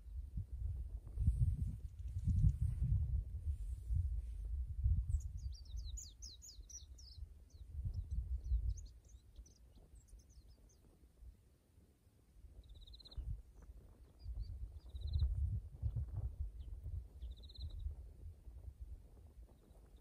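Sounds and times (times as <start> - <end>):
small bird singing high chirps: 5.0 - 10.9, 12.6 - 15.6, 16.5 - 18.0.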